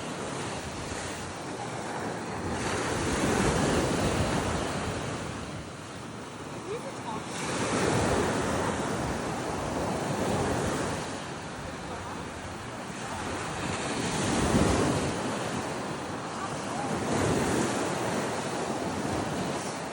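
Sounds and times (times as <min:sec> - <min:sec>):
wind buffeting microphone: 0:00.0 - 0:06.6
ocean surf breaking: 0:00.0 - 0:19.9.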